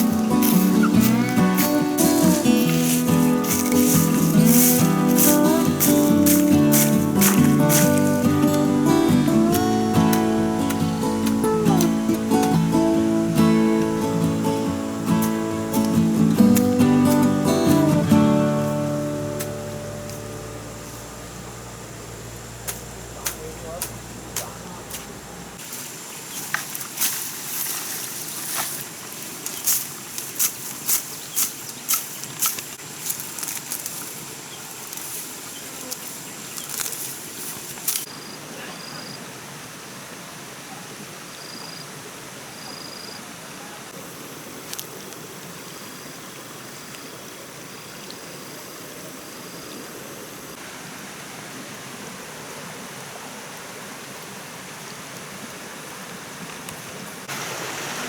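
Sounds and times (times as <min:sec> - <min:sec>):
steady hiss: 0:00.0 - 0:39.0, 0:43.6 - 0:58.0.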